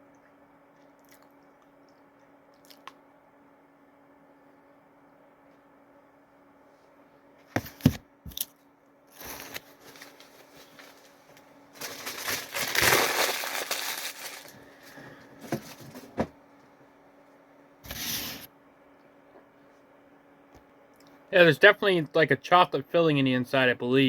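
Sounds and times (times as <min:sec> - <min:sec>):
crackling handling noise: 0:07.5 - 0:16.7.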